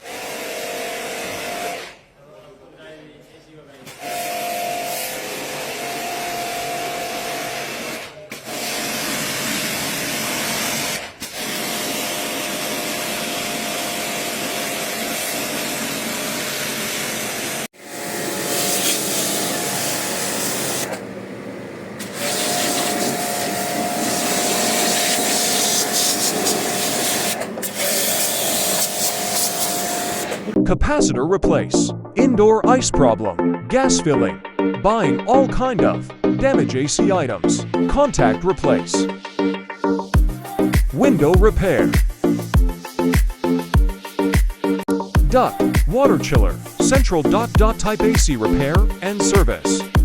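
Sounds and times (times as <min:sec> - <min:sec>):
small machine running with hiss: 0:04.3 - 0:21.1, 0:22.0 - 0:30.6.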